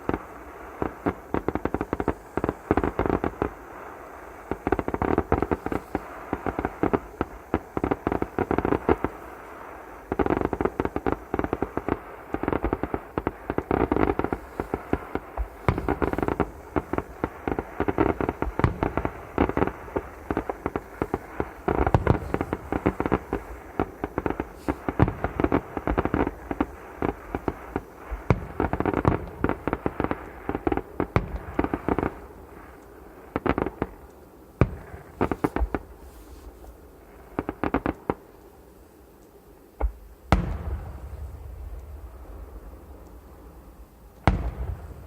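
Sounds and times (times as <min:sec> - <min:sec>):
fireworks banging and crackling: 0:00.0 - 0:45.0
loud firework boom rumbling: 0:15.4 - 0:26.0, 0:40.3 - 0:45.0.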